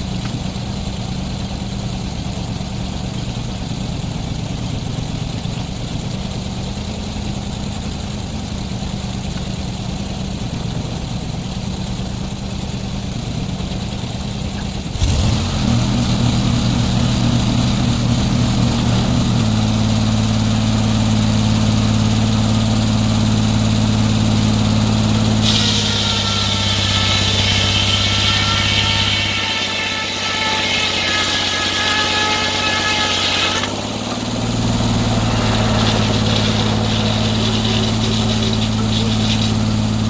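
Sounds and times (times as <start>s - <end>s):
sawmill engine running: 0.0s - 40.0s
saw whine cutting log: 15.0s - 40.0s.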